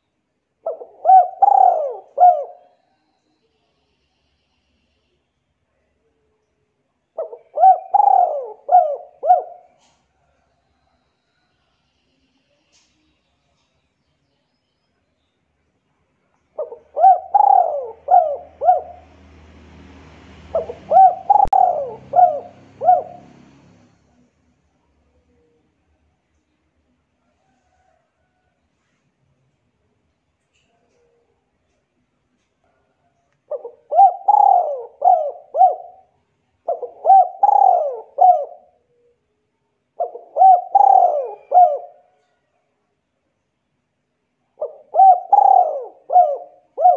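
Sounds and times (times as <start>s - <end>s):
pigeon cooing: 0.6s - 2.9s, 7.2s - 10.4s, 16.5s - 24.4s, 32.6s - 39.3s, 40.0s - 42.4s, 44.6s - 46.9s
bird calling: 0.6s - 3.0s, 7.2s - 10.0s, 16.5s - 19.2s, 20.5s - 23.8s, 33.5s - 39.2s, 40.0s - 42.2s, 44.6s - 46.9s.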